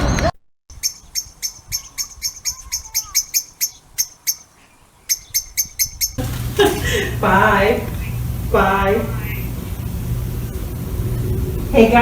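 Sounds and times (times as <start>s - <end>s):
small bird chirping: 0.7s - 6.2s.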